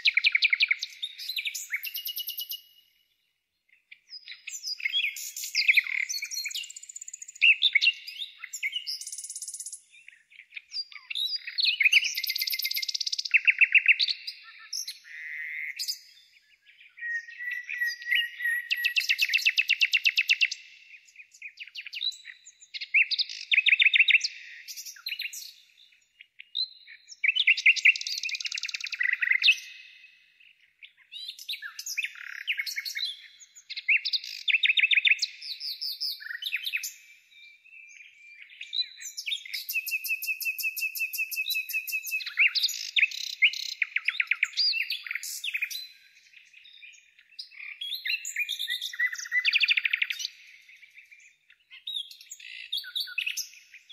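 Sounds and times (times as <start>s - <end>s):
songbirds chirping and trilling: 0.0s - 53.9s.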